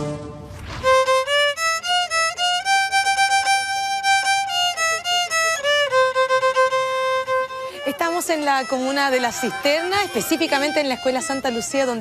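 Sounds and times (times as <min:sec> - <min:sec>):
brief rushing noise: 0:00.0 - 0:01.4
solo violin melody: 0:00.0 - 0:12.0.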